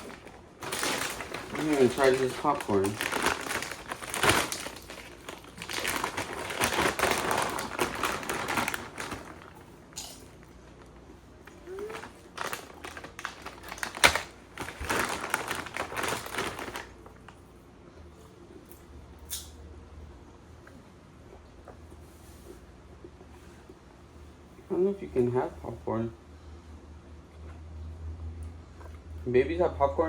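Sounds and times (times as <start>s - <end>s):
popcorn bag crinkling: 0.0s - 17.4s.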